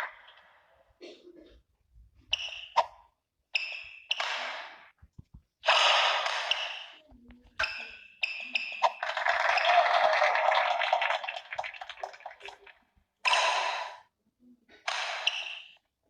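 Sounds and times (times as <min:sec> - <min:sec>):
shoes squeaking on court floor: 0:02.3 - 0:03.0.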